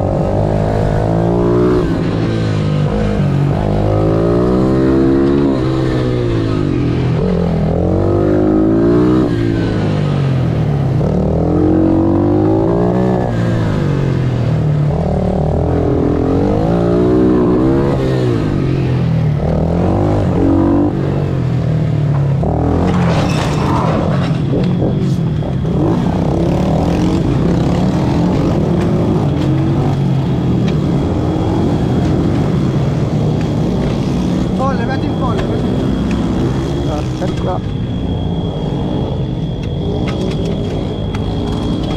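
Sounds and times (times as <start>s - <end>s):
motorbike engine revving: 0.0s - 41.9s
bike crashing and scraping: 22.8s - 24.6s.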